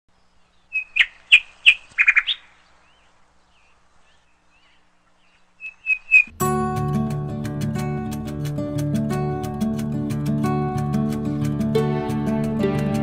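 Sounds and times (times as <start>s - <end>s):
bird chirping: 0.1s - 6.4s.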